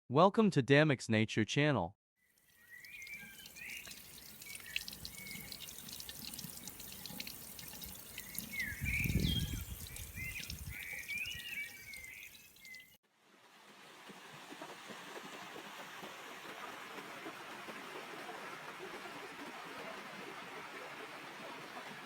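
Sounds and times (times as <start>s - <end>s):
water dripping and trickling: 2.3s - 13.0s
birds chirping: 2.5s - 13.0s.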